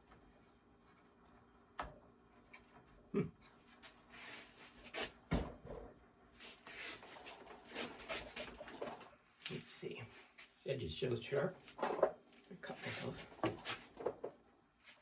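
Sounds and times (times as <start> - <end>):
light rubbing and scraping: 6.4 - 10.6, 11.3 - 15.0.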